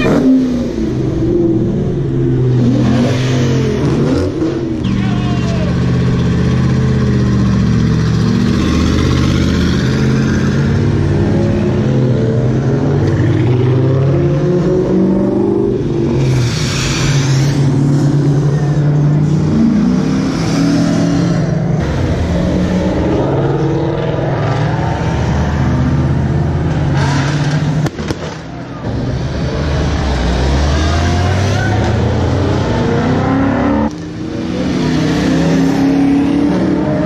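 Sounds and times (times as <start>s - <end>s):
crowd voices: 0.0s - 7.1s, 16.0s - 34.9s
car engines revving: 0.0s - 37.0s.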